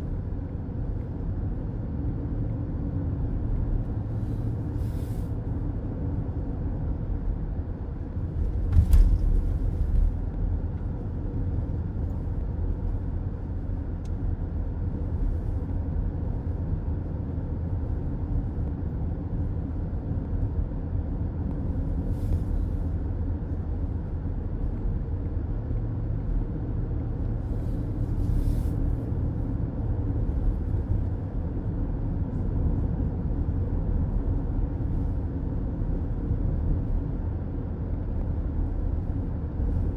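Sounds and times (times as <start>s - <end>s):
car driving on highway: 0.0s - 39.9s
thump: 8.5s - 10.1s.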